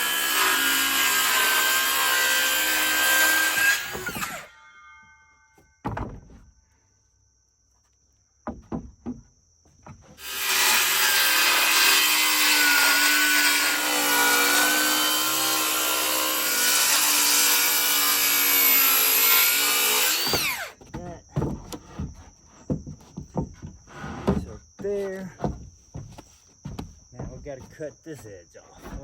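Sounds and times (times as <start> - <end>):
circular saw ripping wood: 0.0 - 4.6, 10.2 - 20.8.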